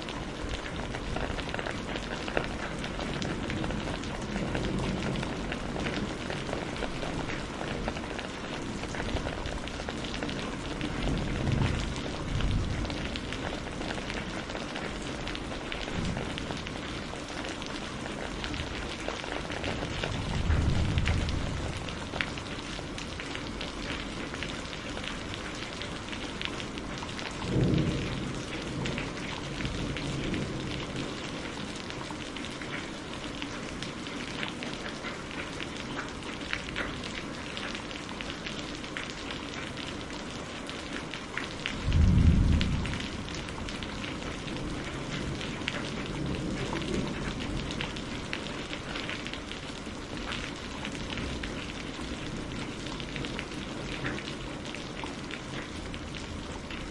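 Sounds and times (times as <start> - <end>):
rain pattering: 0.0 - 56.9
low thunder rumbles: 0.4 - 24.4, 26.8 - 32.1, 41.6 - 49.2.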